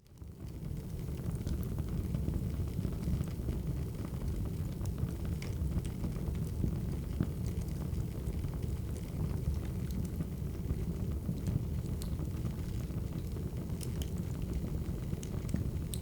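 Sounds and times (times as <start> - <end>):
fire crackling and popping: 7.3 - 16.0.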